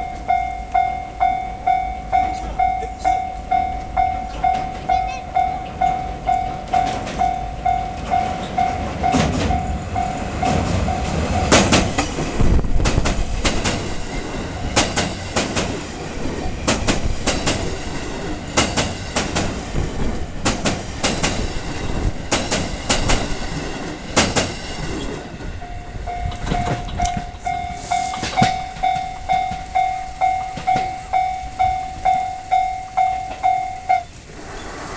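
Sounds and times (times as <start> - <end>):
level crossing bell ringing: 0.0 - 11.5, 25.6 - 34.1
train rumble: 0.0 - 34.9
train wheels clicking over rail joints: 0.0 - 34.9.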